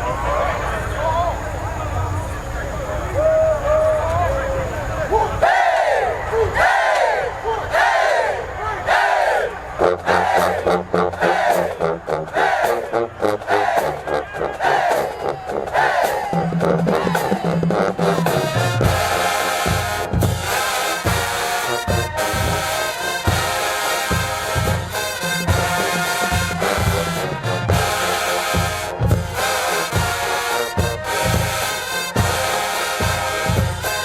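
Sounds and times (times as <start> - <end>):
marching band brass: 5.1 - 34.0
pounding bass drum beat: 9.9 - 34.0.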